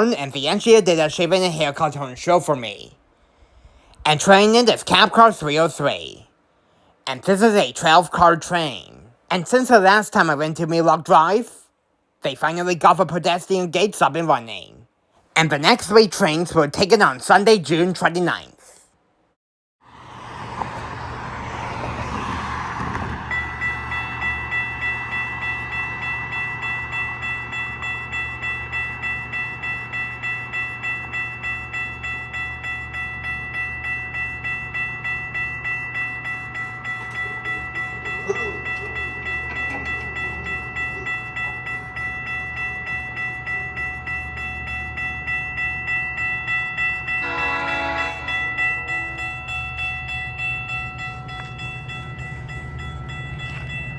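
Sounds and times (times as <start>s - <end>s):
level crossing bell ringing: 0.0s - 2.8s, 23.3s - 53.9s
train horn blast: 47.2s - 49.3s.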